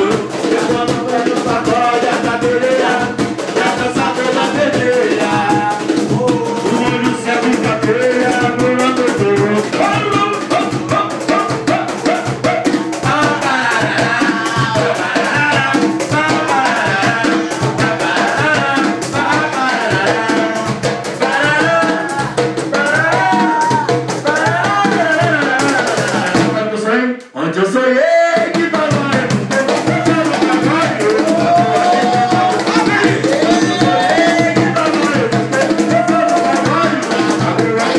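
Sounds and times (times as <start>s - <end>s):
drum beat: 0.0s - 26.8s, 28.2s - 37.9s
band music: 29.5s - 37.9s.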